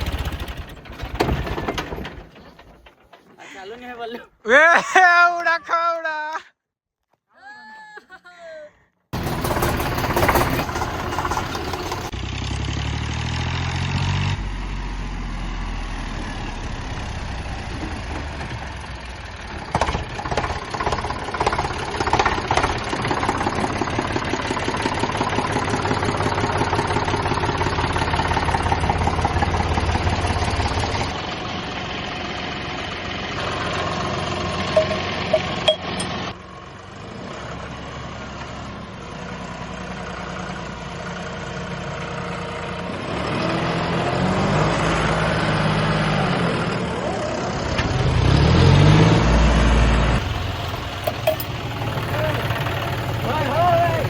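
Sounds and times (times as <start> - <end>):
diesel tractor engines under load: 0.0 - 4.9, 9.2 - 54.0.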